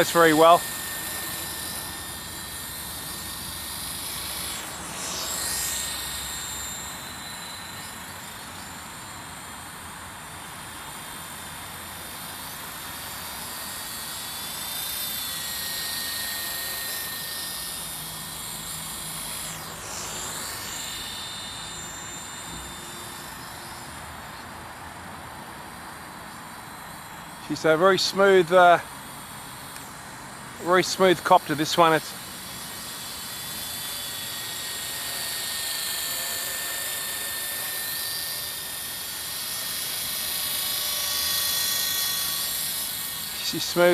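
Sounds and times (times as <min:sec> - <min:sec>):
radio-controlled helicopter buzzing: 0:00.0 - 0:43.9.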